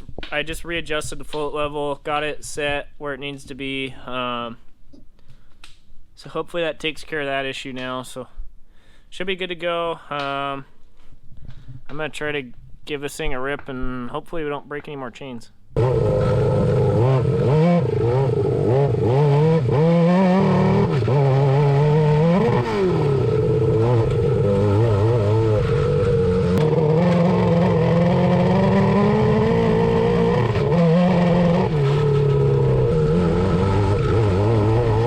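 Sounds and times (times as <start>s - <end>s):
motorcycle engine revving under load: 15.8s - 35.0s.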